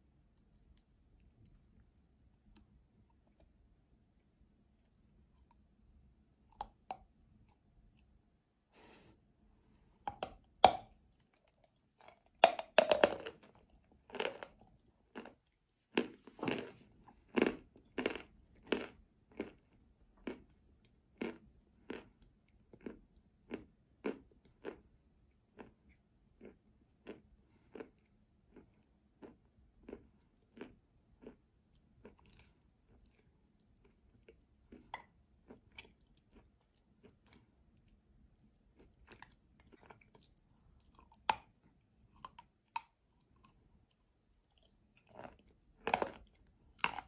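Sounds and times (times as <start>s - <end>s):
crunchy chewing: 10.1s - 20.6s, 21.2s - 24.9s, 25.5s - 47.0s.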